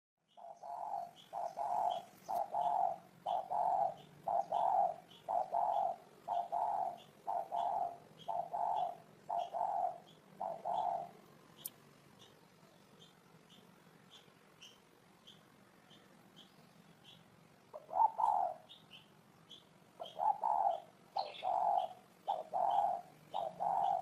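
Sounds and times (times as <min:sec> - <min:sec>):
faint high chirps: 0:00.2 - 0:24.0
dove cooing: 0:00.3 - 0:11.4, 0:17.0 - 0:18.8, 0:19.5 - 0:24.0.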